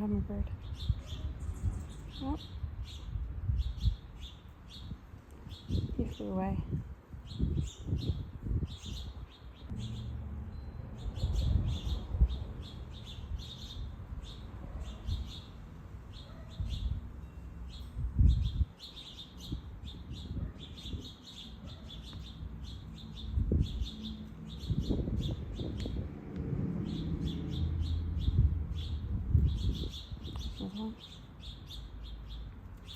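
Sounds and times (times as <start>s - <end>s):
birds chirping: 0.0s - 26.1s, 26.7s - 32.9s
low rumble: 9.7s - 14.6s.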